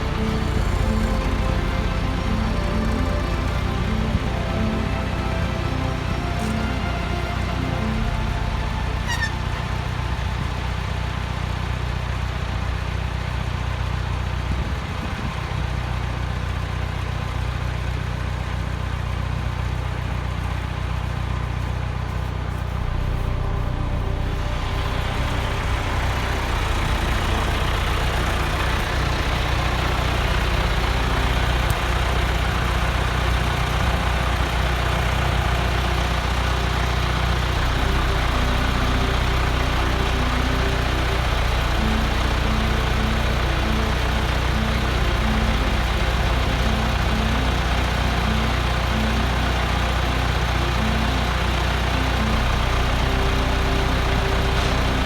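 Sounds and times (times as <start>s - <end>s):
short high tones: 0.0s - 11.5s, 22.6s - 55.0s
engine humming steadily: 0.0s - 55.0s.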